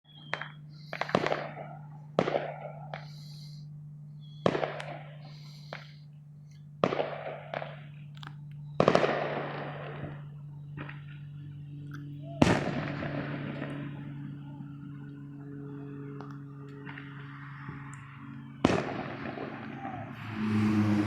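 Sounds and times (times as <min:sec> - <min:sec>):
fireworks bangs: 0:00.2 - 0:03.4, 0:04.4 - 0:06.0, 0:06.8 - 0:08.0, 0:08.8 - 0:10.2, 0:12.4 - 0:14.4, 0:18.6 - 0:20.6
fireworks crackling and hissing: 0:00.3 - 0:03.6, 0:04.2 - 0:08.0.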